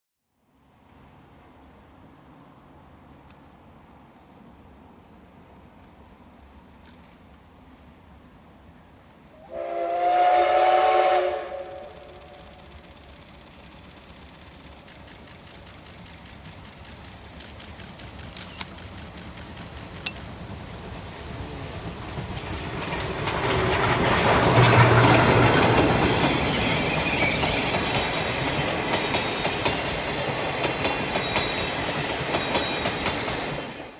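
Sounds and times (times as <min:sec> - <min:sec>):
rumble of approaching train: 0:00.5 - 0:33.9
insects chirping: 0:00.8 - 0:10.0, 0:11.4 - 0:33.0
steam locomotive whistle: 0:09.4 - 0:13.0.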